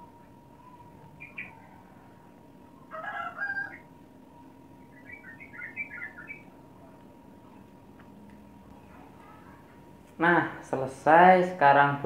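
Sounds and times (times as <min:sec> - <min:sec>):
birds chirping: 0:00.0 - 0:10.3
faint steady hum: 0:00.0 - 0:12.0.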